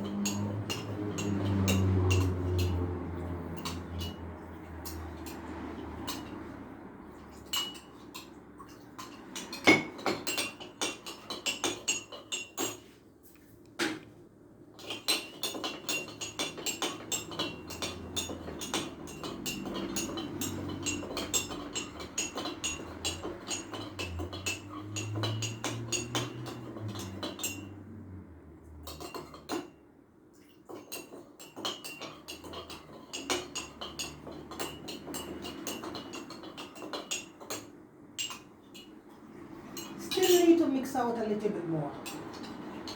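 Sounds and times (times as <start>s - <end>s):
spoon clinking in a container: 0.0s - 6.5s, 7.1s - 13.0s, 14.8s - 27.9s, 28.8s - 29.8s, 30.7s - 39.0s, 39.7s - 40.7s, 42.0s - 42.9s.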